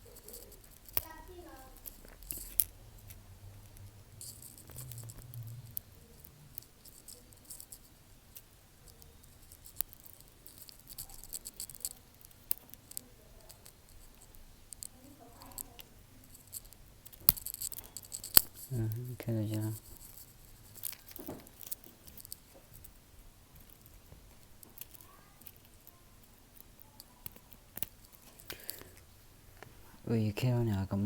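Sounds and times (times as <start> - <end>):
small tools clicking and tapping: 0.0 - 18.8, 19.5 - 23.0, 23.6 - 29.7
low hum: 1.6 - 7.7.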